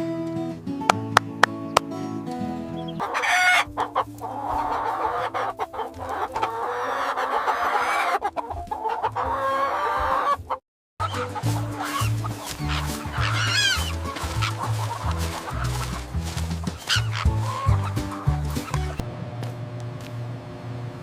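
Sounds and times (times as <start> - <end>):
acoustic guitar strumming: 0.0 - 4.0, 11.1 - 19.0
faint background music: 0.0 - 19.0
chickens clucking: 0.9 - 19.0.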